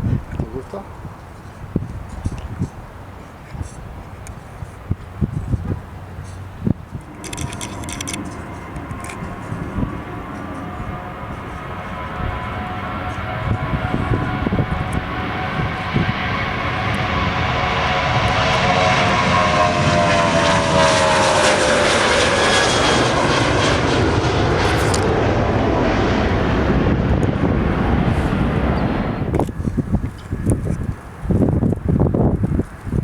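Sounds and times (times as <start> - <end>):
airplane passing close by: 0.0 - 33.0.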